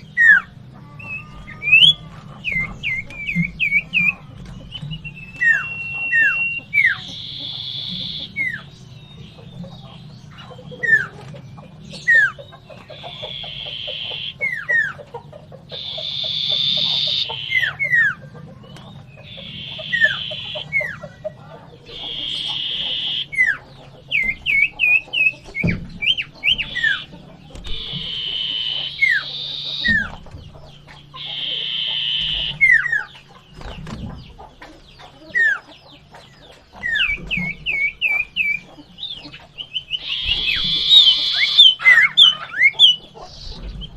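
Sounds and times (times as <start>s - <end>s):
harsh buzzing bird calls: 0.0s - 43.9s
bird whistles: 0.2s - 8.7s, 15.7s - 18.2s, 19.2s - 21.0s, 21.9s - 23.6s, 24.2s - 30.2s, 31.2s - 33.2s, 39.6s - 43.9s.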